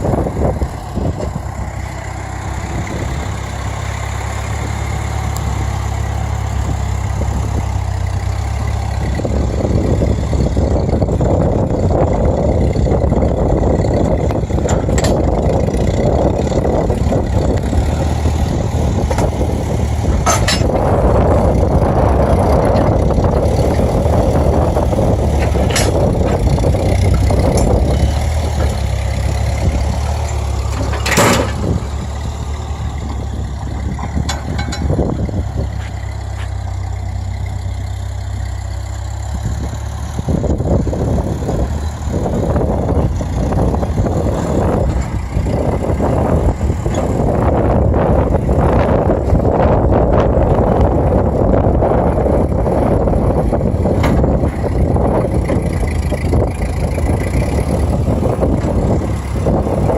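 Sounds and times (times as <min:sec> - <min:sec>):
tractor engine running: 0:00.0 - 0:59.9
sharp engine knocks: 0:13.8 - 0:17.1, 0:17.8 - 0:21.4, 0:25.1 - 0:32.3, 0:32.9 - 0:36.6, 0:53.8 - 0:56.6.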